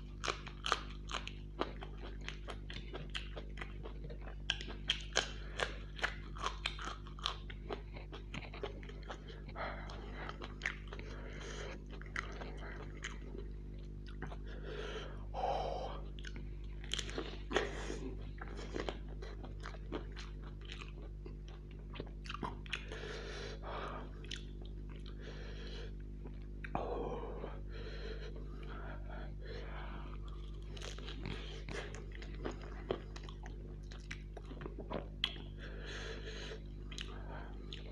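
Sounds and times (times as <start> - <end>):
crunching chilli: 0.0 - 14.4, 16.1 - 23.0
wet chewing: 0.0 - 14.9, 16.0 - 25.3, 29.4 - 37.9.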